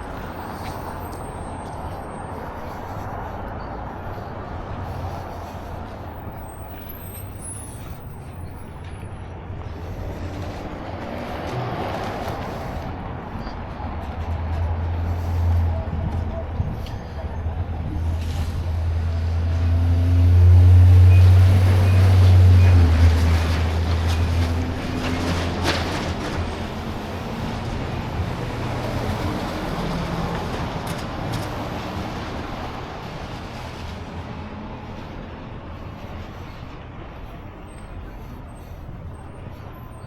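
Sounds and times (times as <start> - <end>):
traffic noise: 0.0 - 40.0
vehicle engine driving past: 18.1 - 26.5.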